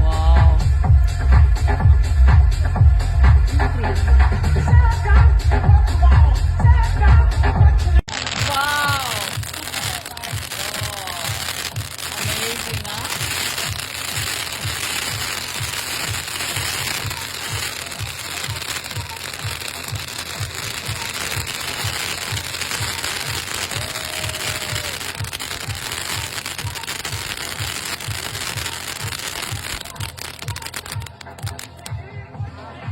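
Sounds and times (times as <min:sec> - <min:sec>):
music with fast low beat: 0:00.0 - 0:32.9
fireworks crackling: 0:08.0 - 0:32.0.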